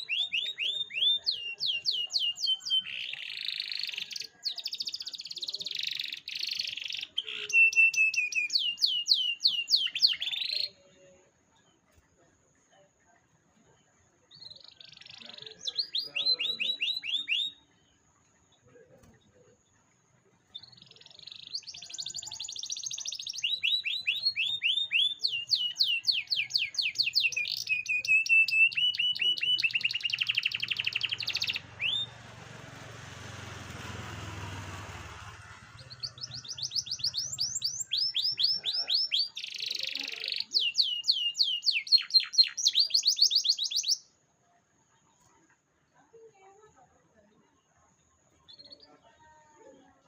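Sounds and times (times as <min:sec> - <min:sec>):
canary singing trills: 0:00.0 - 0:11.0, 0:14.3 - 0:19.2, 0:20.4 - 0:32.4, 0:33.3 - 0:44.2, 0:48.3 - 0:49.2.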